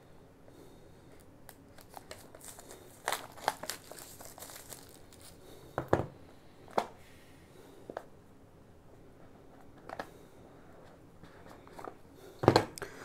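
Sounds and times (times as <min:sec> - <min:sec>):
packaging crinkling and tearing: 0:01.5 - 0:05.4.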